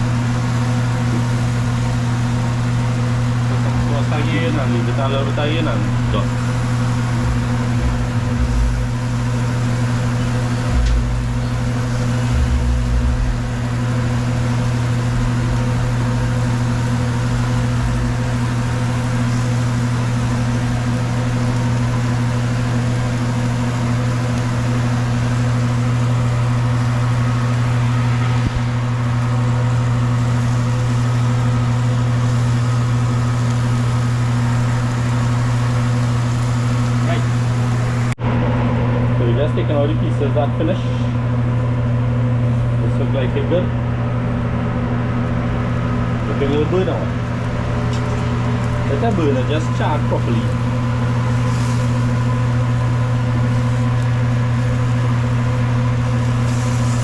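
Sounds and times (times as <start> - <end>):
low mechanical hum: 0.0 - 57.0
low bumps: 6.0 - 19.7.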